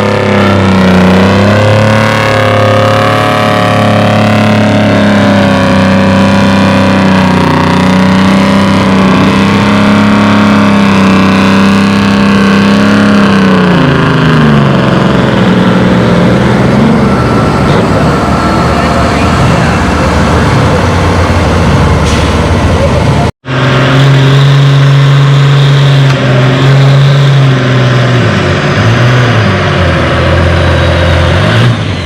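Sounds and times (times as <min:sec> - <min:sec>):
engine running hard under load: 0:00.0 - 0:32.0.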